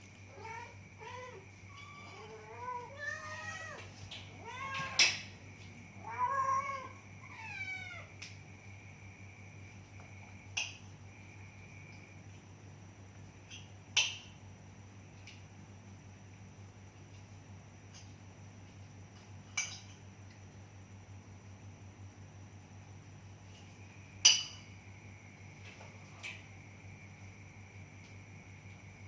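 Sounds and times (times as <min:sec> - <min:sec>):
cat meowing: 0:00.3 - 0:05.1, 0:06.0 - 0:08.1.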